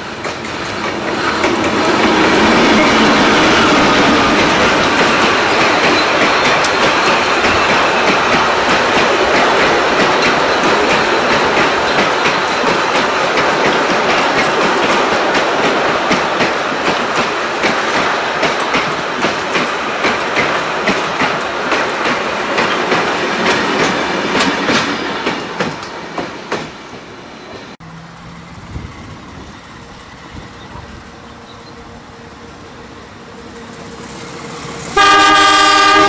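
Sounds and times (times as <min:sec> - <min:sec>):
train wheels clicking over rail joints: 0:00.0 - 0:27.8
diesel locomotive passing: 0:00.0 - 0:36.0
distant train: 0:00.0 - 0:36.0
train rumble: 0:00.0 - 0:36.0.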